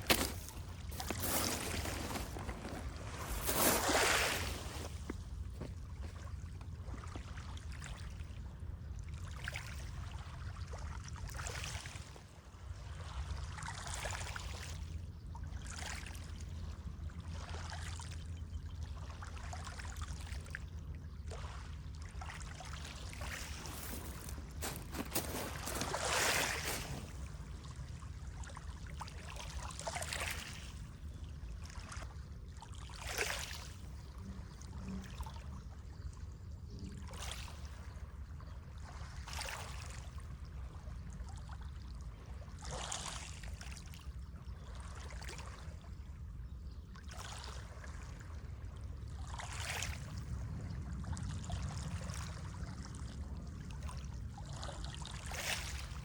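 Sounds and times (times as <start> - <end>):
water splashing: 0.0 - 5.1, 22.8 - 27.4
moving water rumbling: 0.0 - 7.1, 22.4 - 29.2.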